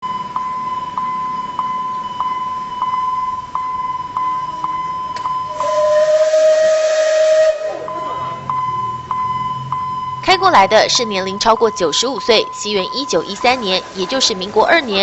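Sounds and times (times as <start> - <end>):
continuous high tone: 0.0 - 15.0
steam locomotive whistle: 5.4 - 8.5
rush of steam: 5.5 - 8.4.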